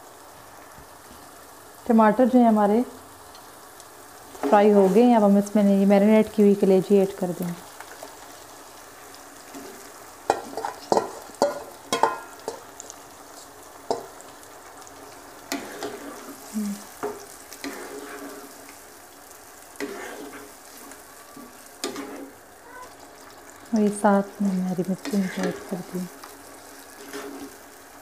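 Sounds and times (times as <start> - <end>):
meat sizzling in a wok: 0.0 - 28.0
spatula scraping a pan: 9.5 - 14.3, 15.4 - 18.8, 19.7 - 22.4, 24.9 - 26.0, 26.8 - 27.7.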